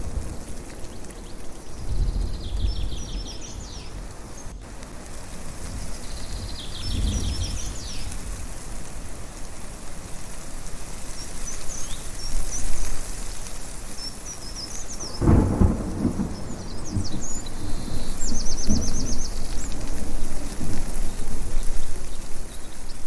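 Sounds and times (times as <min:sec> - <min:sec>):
thunder rumbling: 0:00.0 - 0:09.1, 0:14.8 - 0:23.0
birds chirping: 0:00.8 - 0:04.7, 0:05.7 - 0:08.2, 0:13.8 - 0:23.0.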